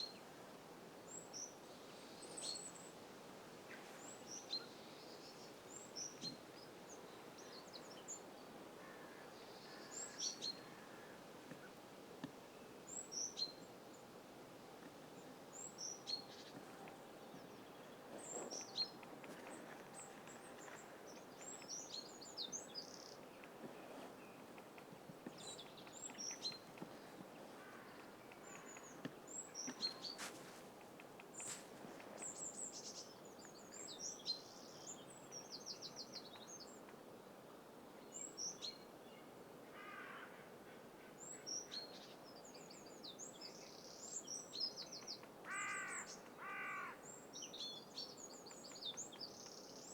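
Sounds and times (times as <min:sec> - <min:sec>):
small birds chirping: 0:14.8 - 0:37.0, 0:41.3 - 0:49.9.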